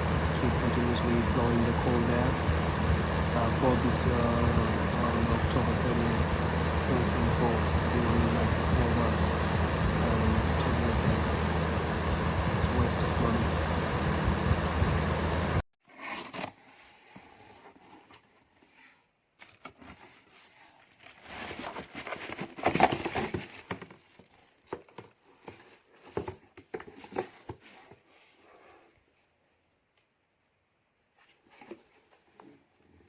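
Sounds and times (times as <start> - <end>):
fan heater blowing: 0.0 - 15.6
rustling and clicking handling noises: 17.5 - 28.2.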